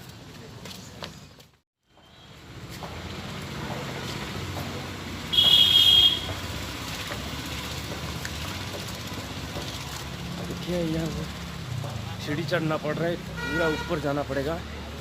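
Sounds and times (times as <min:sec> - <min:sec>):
road traffic noise: 0:00.0 - 0:15.0
high-pitched horn toot: 0:05.3 - 0:06.3.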